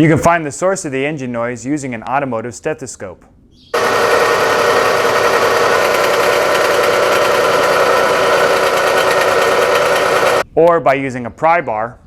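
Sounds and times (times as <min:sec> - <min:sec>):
belt drive grinding: 0:03.8 - 0:10.4
car engine running: 0:03.8 - 0:10.4.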